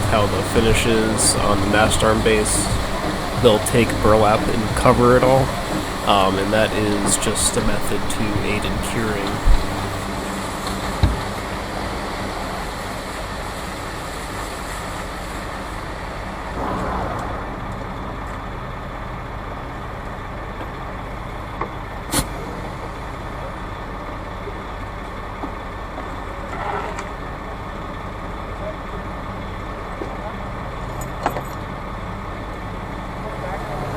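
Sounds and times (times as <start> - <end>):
diesel engine idling: 0.0 - 10.1
rushing noise: 0.0 - 10.1.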